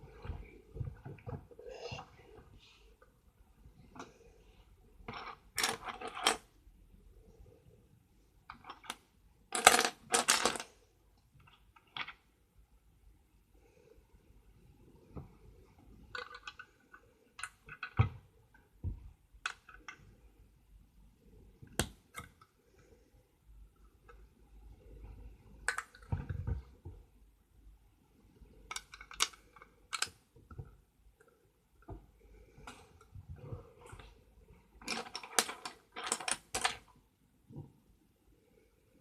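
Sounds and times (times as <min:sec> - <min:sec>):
plastic pieces clicking and clattering: 0:05.1 - 0:06.5, 0:08.5 - 0:10.7, 0:16.1 - 0:18.2, 0:19.4 - 0:20.1, 0:25.6 - 0:26.6, 0:28.7 - 0:30.7, 0:34.8 - 0:36.9.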